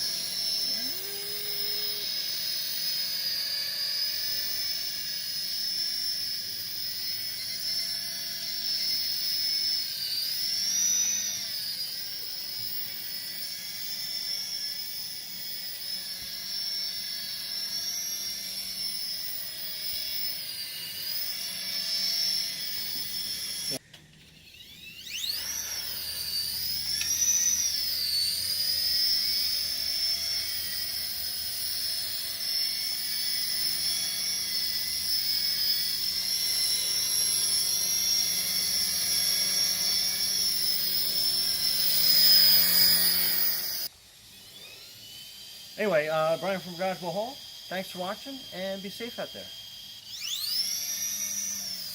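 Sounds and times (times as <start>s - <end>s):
toy helicopter rotors whining: 0.0s - 51.9s.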